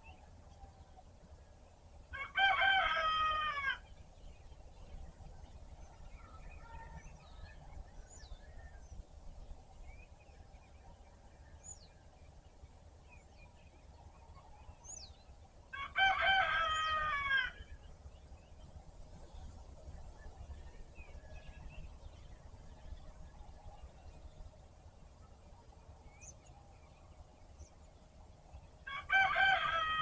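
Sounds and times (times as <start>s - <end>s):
low steady rumble: 0.0s - 30.0s
rooster crowing: 2.1s - 3.8s, 15.8s - 17.7s, 28.9s - 30.0s
small birds chirping: 3.8s - 15.7s, 16.5s - 29.8s.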